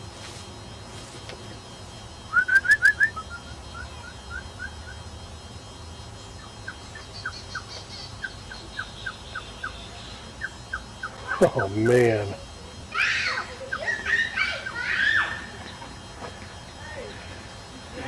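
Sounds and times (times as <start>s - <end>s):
bird whistled chirps: 2.3s - 5.0s
faint high bird chatter: 6.2s - 18.0s.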